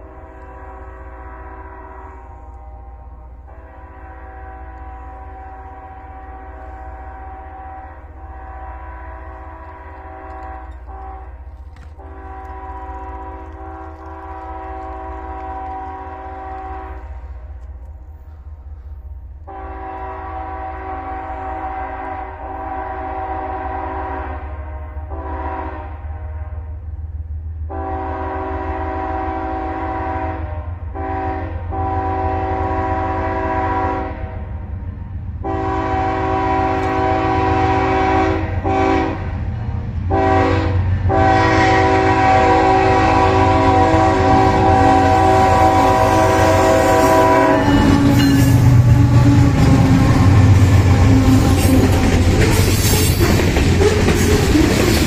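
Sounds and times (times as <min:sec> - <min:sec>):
locomotive air horn blasts: 0:00.0 - 0:17.5, 0:19.4 - 0:26.8, 0:27.7 - 0:34.6, 0:35.4 - 0:39.3, 0:40.1 - 0:54.9
locomotive engine rumble: 0:00.0 - 0:21.6, 0:31.7 - 0:55.0
freight cars rattling past: 0:47.0 - 0:55.0.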